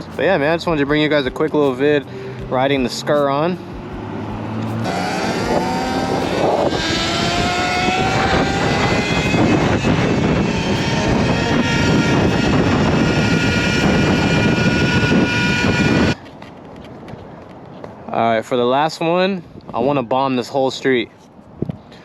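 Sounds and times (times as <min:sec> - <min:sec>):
heavy wind noise: 0:00.0 - 0:20.7, 0:21.4 - 0:22.0
electric motor whining: 0:03.8 - 0:16.2.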